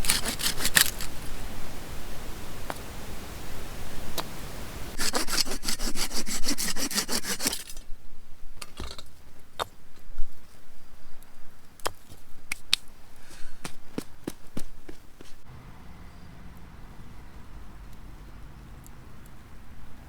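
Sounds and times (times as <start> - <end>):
hand saw cutting wood: 0.0 - 1.2, 5.0 - 7.9.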